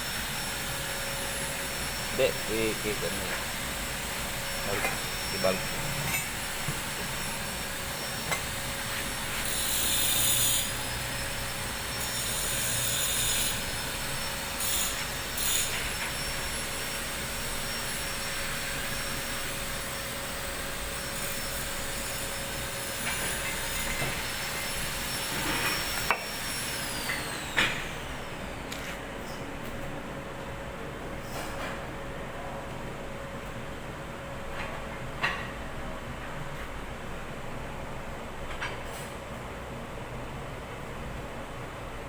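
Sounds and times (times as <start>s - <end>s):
steady high whine: 0.0s - 9.4s.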